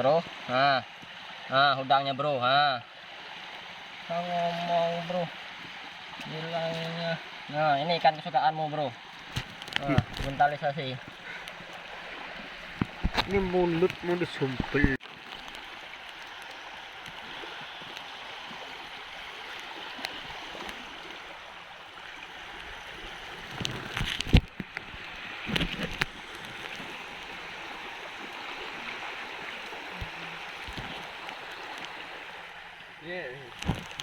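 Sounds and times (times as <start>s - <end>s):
water washing on shore: 0.0s - 34.0s
knocks and handling noises: 12.6s - 14.0s.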